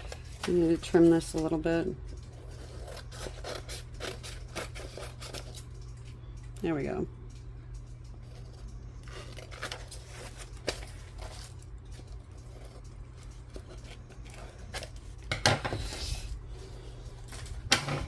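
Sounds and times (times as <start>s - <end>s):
paper rustle and clatter: 0.0s - 6.1s, 7.9s - 18.0s
steady low hum: 0.0s - 18.0s.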